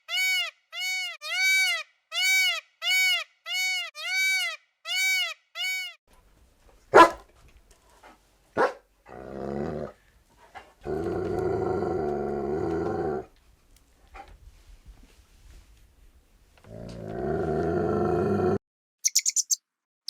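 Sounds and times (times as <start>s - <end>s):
dog barking: 6.9s - 7.2s, 8.6s - 8.8s
dog growling: 9.1s - 10.0s, 10.8s - 13.3s, 16.7s - 18.6s.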